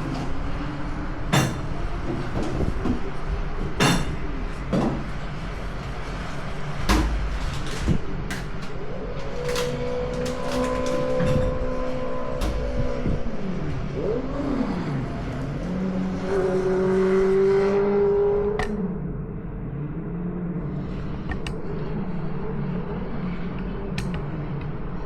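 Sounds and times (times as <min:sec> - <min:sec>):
sharp clicks or knocks: 0:01.3 - 0:01.8, 0:03.8 - 0:04.3, 0:06.9 - 0:08.8, 0:12.4 - 0:13.2
vehicle engines passing: 0:11.2 - 0:19.0.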